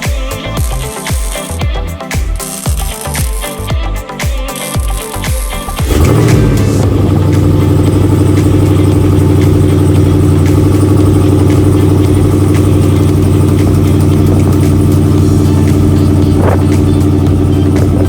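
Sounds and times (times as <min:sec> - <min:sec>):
pickup engine idling: 0:05.8 - 0:18.0.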